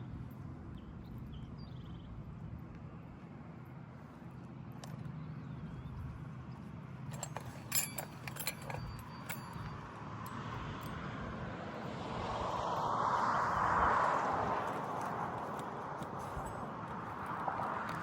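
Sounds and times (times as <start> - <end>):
hand tools tapping and clicking: 7.1 - 10.4.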